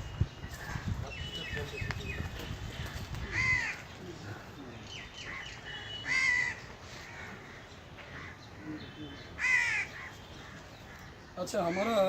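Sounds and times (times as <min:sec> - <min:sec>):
bird cawing harshly: 0:03.2 - 0:03.9, 0:05.2 - 0:08.4, 0:09.4 - 0:12.0.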